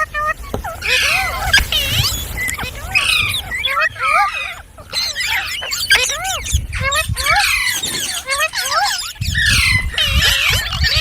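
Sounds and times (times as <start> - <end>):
parrots chattering and squawking: 5.0 - 10.5.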